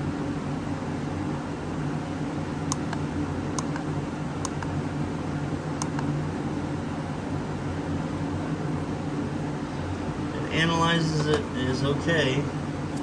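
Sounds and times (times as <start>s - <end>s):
low fan hum: 0.0s - 13.0s
button clicks: 2.7s - 3.0s, 3.6s - 3.8s, 4.4s - 4.7s, 5.8s - 6.1s.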